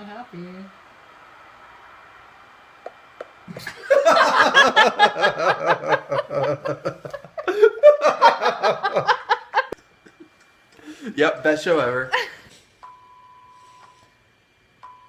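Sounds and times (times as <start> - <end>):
people laughing hard: 3.6 - 9.8.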